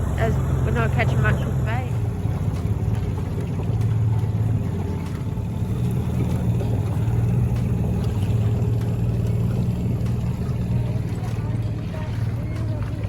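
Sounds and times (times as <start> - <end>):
motorboat engine humming: 0.0 - 13.0.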